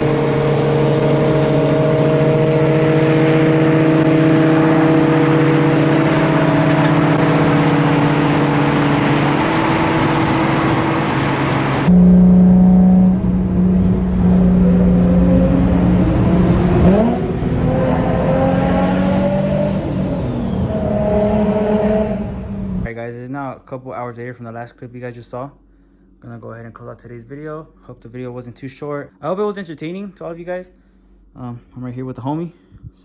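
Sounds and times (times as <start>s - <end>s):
car engine running: 0.0s - 22.9s
road and wind noise: 0.0s - 22.9s.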